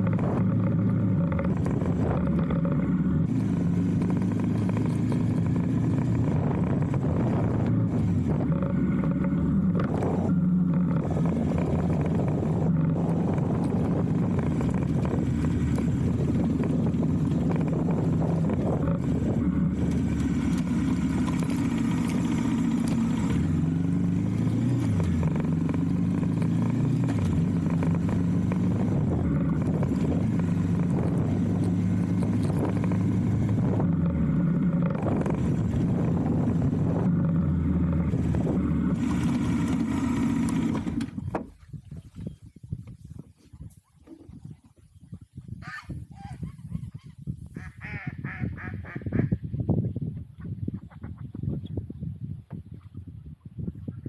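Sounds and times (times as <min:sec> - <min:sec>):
motorcycle engine running: 0:00.0 - 0:41.8.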